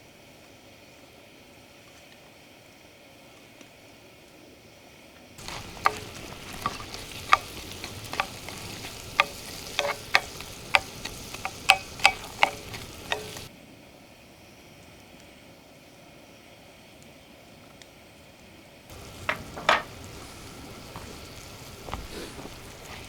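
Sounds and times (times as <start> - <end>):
food sizzling: 5.4 - 13.5, 18.9 - 23.0
sharp pops and crackles: 5.4 - 13.5, 18.9 - 23.0.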